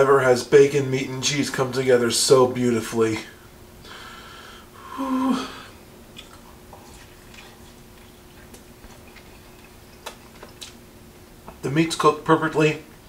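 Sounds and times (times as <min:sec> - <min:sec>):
steady low hum: 0:00.0 - 0:13.0
man exhaling whew: 0:03.8 - 0:05.8
mouth clicks while chewing: 0:06.1 - 0:10.8.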